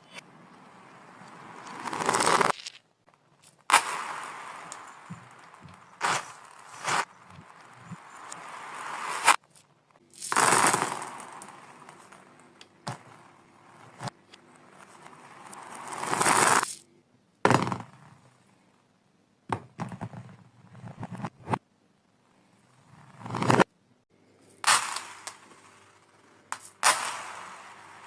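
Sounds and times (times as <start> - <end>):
reversed marbles rolling: 0.9 - 16.8, 24.6 - 28.0
marbles clicking: 15.5 - 16.8.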